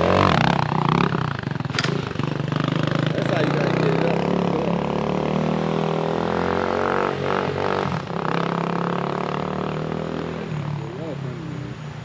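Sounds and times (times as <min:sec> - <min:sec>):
dirt bike engine running: 0:00.0 - 0:05.6.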